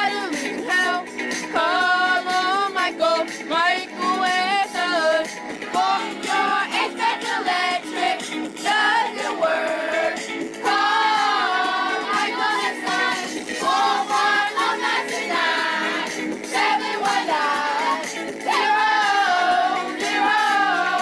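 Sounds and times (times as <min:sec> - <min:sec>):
backing track with steady beat: 0:00.0 - 0:21.0
children singing a jingle: 0:05.8 - 0:21.0.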